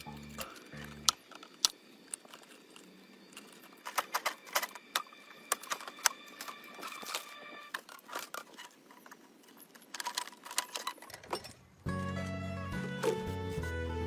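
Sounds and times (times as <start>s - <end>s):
background music: 0.0s - 7.8s, 11.9s - 14.0s.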